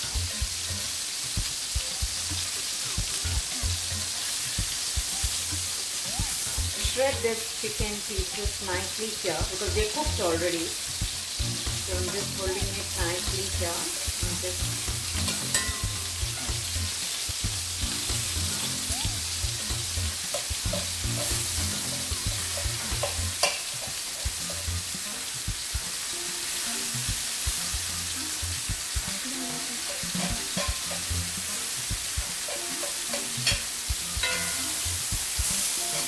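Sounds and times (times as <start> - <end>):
chicken sizzling in a pan: 0.0 - 36.0
utensils scraping and tapping pan: 9.4 - 17.1, 19.6 - 25.3, 29.8 - 36.0.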